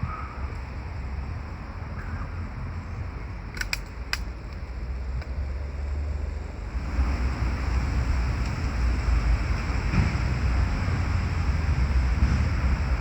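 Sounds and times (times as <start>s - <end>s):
sharp clicks: 3.5s - 4.6s
wind buffeting microphone: 6.6s - 13.0s.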